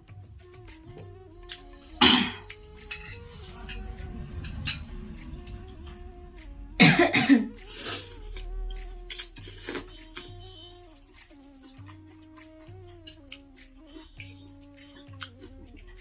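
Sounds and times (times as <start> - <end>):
person coughing: 2.0 - 2.5, 6.8 - 7.6.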